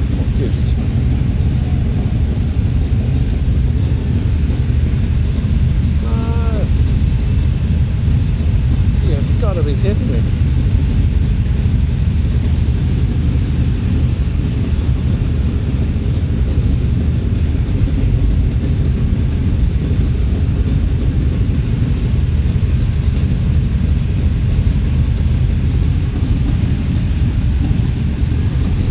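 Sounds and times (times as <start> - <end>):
race car engine rumbling: 0.0 - 28.9.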